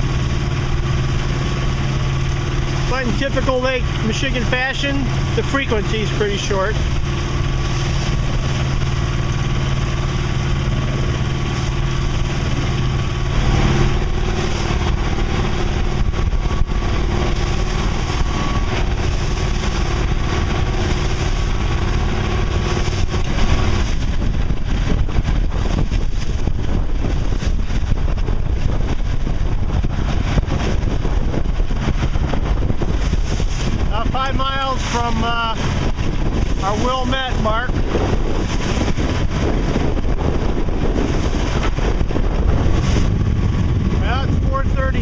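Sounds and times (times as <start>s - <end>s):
boat engine running: 0.0s - 45.0s
choppy waves: 0.0s - 45.0s
wind on microphone: 0.0s - 45.0s.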